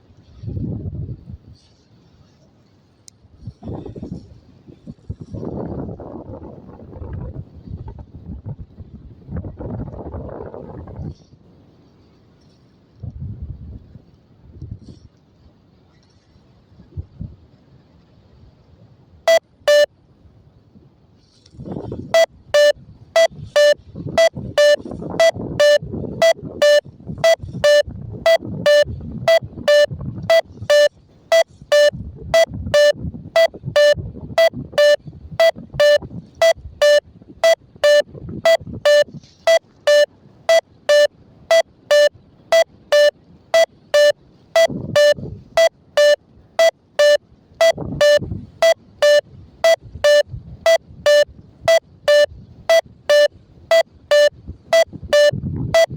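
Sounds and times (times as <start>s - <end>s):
short electronic beeps: 19.3s - 19.9s, 22.0s - 55.9s.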